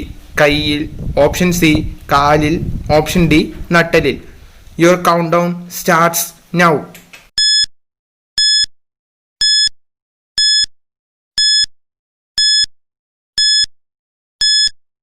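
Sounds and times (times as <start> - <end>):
short electronic beeps: 7.4 - 7.7, 8.4 - 8.7, 9.4 - 9.8, 10.4 - 10.7, 11.4 - 11.7, 12.4 - 12.7, 13.4 - 13.7, 14.4 - 14.8.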